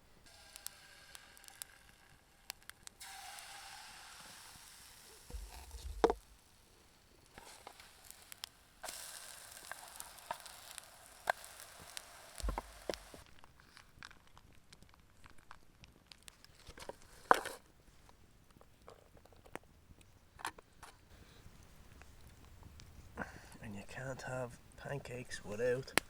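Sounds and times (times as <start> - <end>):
food sizzling in a hot pan: 0.2 - 13.4
handling clicks and knocks: 18.5 - 26.0.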